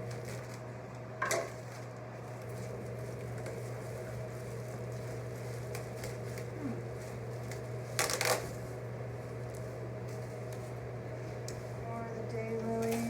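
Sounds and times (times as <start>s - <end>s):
steady low hum: 0.0s - 13.0s
packaging rustling and crinkling: 1.4s - 10.8s.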